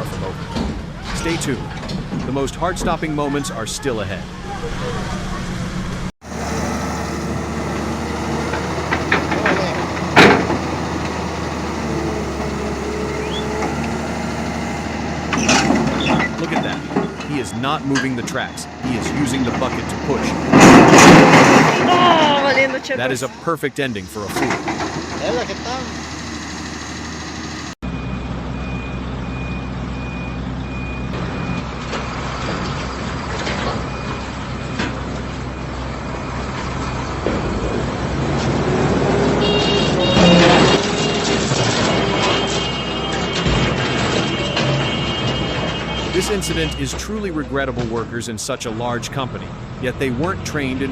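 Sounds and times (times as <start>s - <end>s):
heavy machine engine running: 0.0s - 50.9s
reversing alarm beeps: 27.9s - 31.7s.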